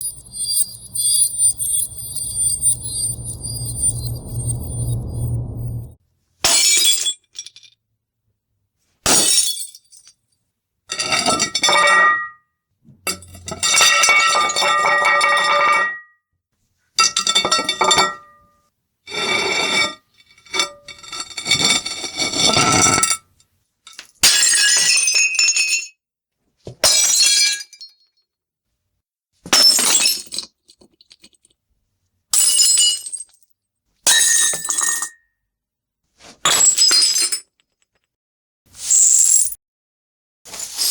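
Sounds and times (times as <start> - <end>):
glass smashing: 11.0 - 12.4, 13.1 - 16.0.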